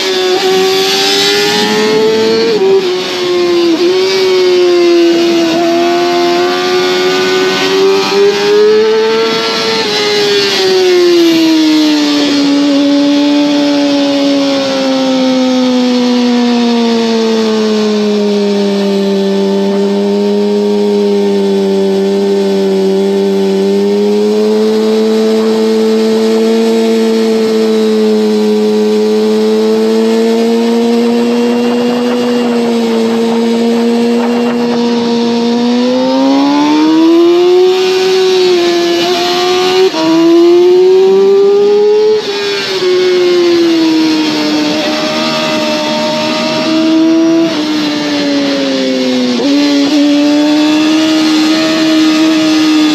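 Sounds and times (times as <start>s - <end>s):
wind rush on microphone: 0.0s - 4.5s, 30.2s - 36.8s
motorcycle engine at high revs: 0.0s - 52.9s.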